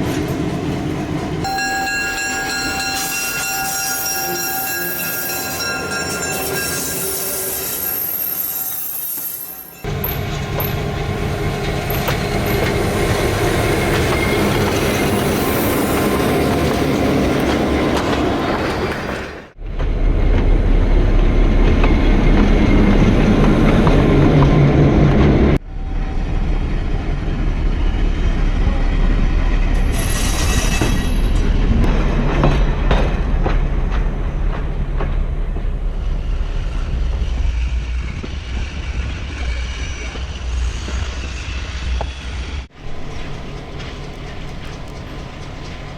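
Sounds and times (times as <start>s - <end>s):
train wheels squealing and clacking: 1.4s - 19.5s, 29.5s - 35.2s, 36.1s - 45.9s
diesel locomotive rumbling: 9.8s - 45.9s.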